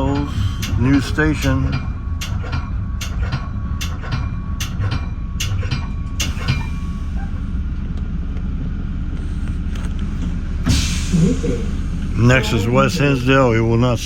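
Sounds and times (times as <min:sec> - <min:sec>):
wheels clicking over track joints: 0:00.0 - 0:10.4
train car rumbling on track: 0:00.0 - 0:14.0.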